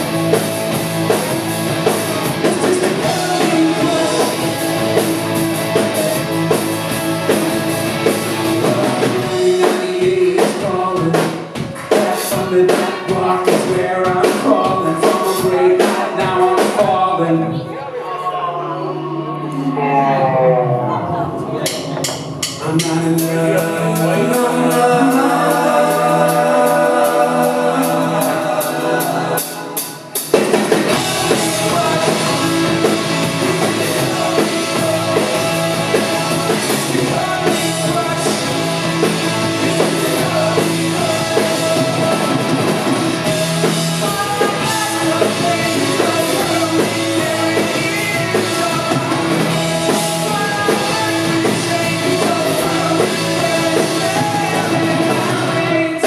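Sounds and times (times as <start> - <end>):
rock band playing live: 0.0 - 17.4, 20.7 - 56.0
bass guitar: 0.0 - 17.7, 18.8 - 56.0
drums: 0.0 - 17.7, 20.8 - 56.0
person singing: 1.8 - 56.0.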